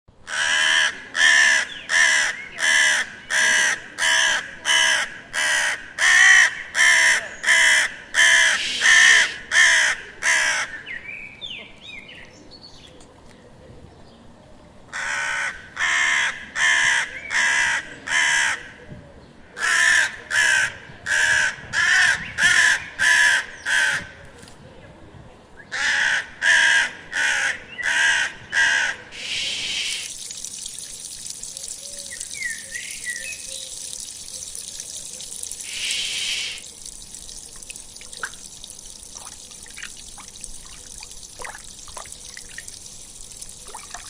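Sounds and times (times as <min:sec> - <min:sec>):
crow cawing: 0:00.3 - 0:10.7, 0:14.9 - 0:18.6.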